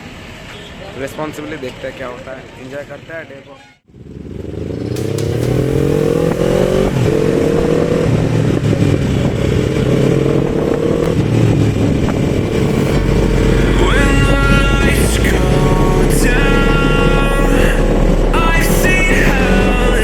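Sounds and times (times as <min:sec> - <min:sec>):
wind and road noise: 0:00.0 - 0:20.0
motorcycle engine accelerating: 0:03.9 - 0:20.0
high multi-note tone: 0:05.0 - 0:08.9, 0:12.4 - 0:20.0.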